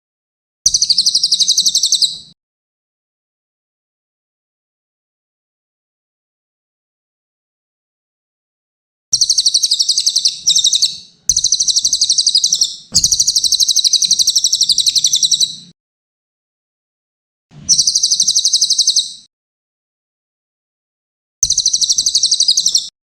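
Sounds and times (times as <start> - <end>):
parrot trilled chirping: 0.7 - 2.3, 9.2 - 15.7, 17.7 - 19.3, 21.4 - 22.9.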